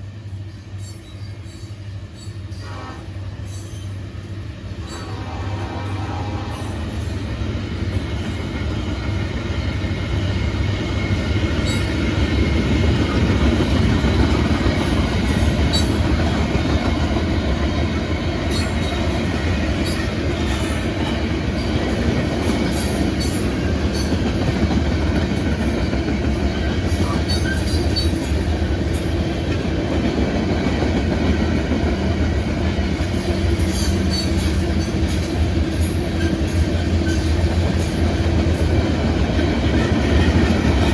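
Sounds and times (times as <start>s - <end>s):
train rumbling past: 0.0s - 40.9s
wheel clatter on rail joints: 33.0s - 40.9s.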